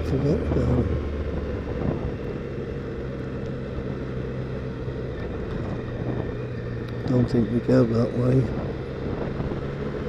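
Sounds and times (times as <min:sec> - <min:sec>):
motorcycle engine cruising: 0:00.0 - 0:10.0
wind noise on microphone: 0:00.3 - 0:02.3, 0:05.2 - 0:06.7, 0:08.5 - 0:10.0.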